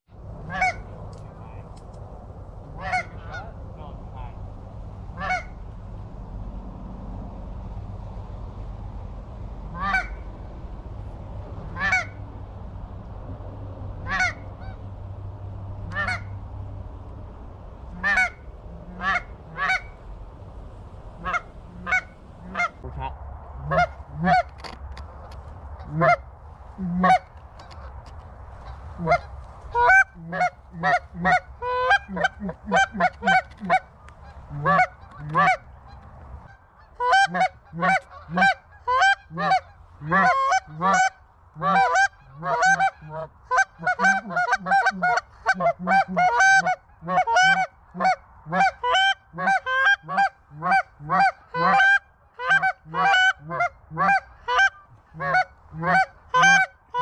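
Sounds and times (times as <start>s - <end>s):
geese honking: 0.4s - 1.6s, 2.6s - 4.3s, 5.1s - 5.7s, 9.7s - 10.3s, 11.6s - 12.2s, 14.0s - 14.9s, 15.8s - 16.4s, 17.8s - 57.0s.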